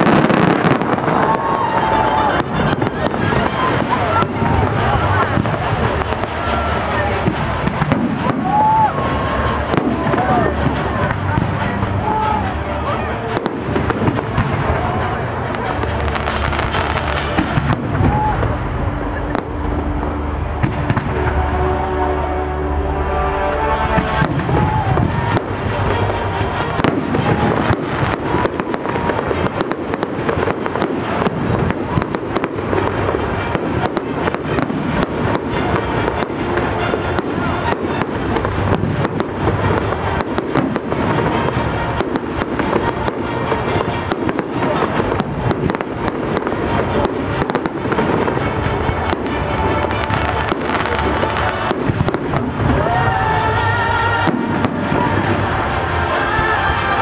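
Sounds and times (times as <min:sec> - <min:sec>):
fireworks bangs and crackles: 0:00.0 - 0:22.2, 0:23.2 - 0:57.0
music playing: 0:00.0 - 0:57.0.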